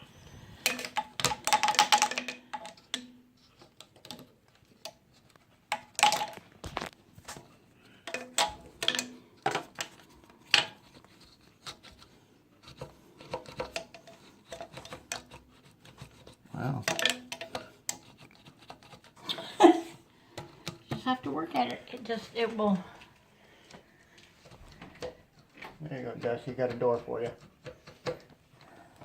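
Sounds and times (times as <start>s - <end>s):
drain snake clicking and rattling: 0.1s - 19.4s.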